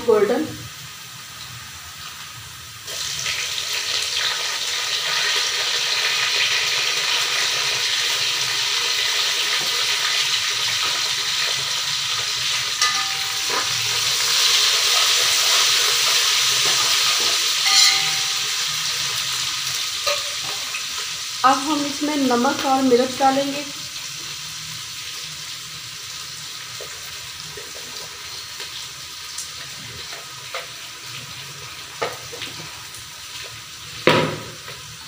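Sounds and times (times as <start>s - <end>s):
onions sizzling in oil: 0.0s - 35.0s
spoon knocking against pot: 12.8s - 13.8s, 17.6s - 18.5s.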